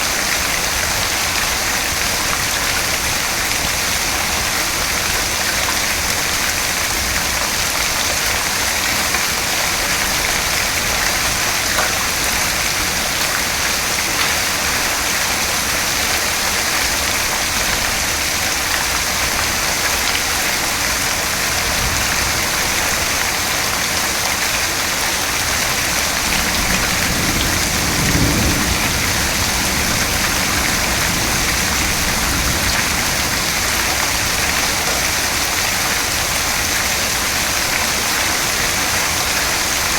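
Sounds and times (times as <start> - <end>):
steady rain hissing: 0.0 - 39.9
low roll of thunder: 25.7 - 34.8.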